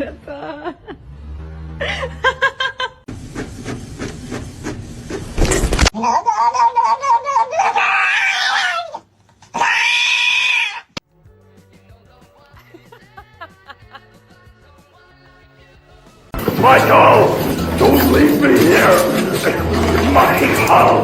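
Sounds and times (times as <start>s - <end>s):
cat yowling: 6.7s - 9.0s, 9.6s - 11.0s
background music: 11.0s - 21.0s.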